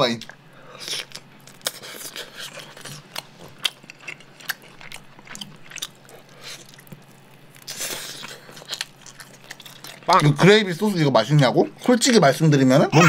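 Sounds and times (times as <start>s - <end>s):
person chewing meat: 0.2s - 10.4s.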